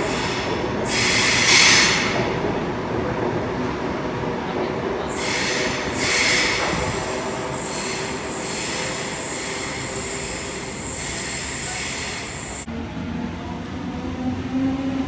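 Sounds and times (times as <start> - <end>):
high wheel squeal: 5.1 - 12.7.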